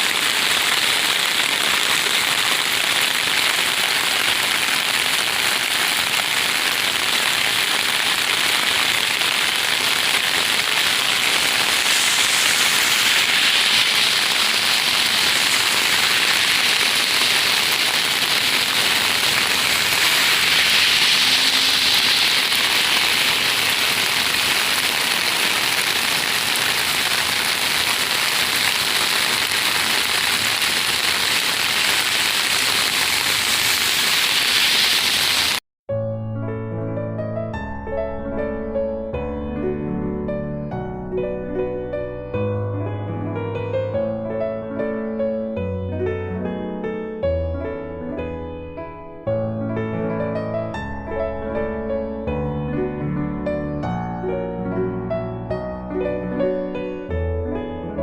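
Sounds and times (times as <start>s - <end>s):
heavy rain pattering: 0.0s - 35.6s.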